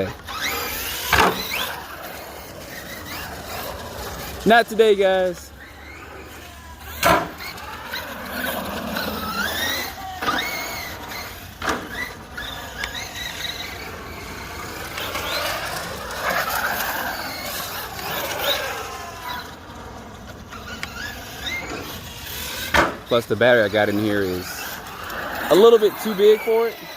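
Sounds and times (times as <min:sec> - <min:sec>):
rc truck electric motor whining: 0:00.0 - 0:26.9.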